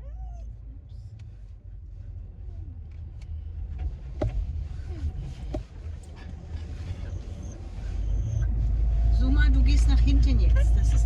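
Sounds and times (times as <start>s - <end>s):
road and engine rumble: 0.0s - 11.0s
dog whining faintly: 6.9s - 8.6s.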